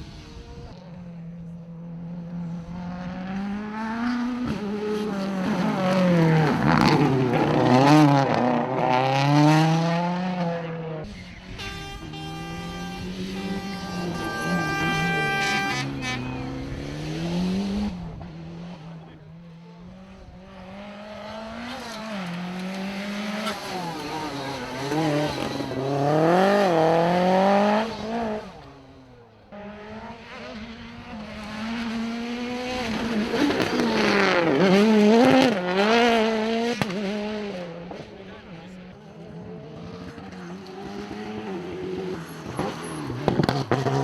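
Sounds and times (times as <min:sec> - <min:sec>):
rally car engines revving: 0:00.0 - 0:44.0
tyre squeal: 0:11.2 - 0:16.7
steady held tone: 0:11.6 - 0:16.6.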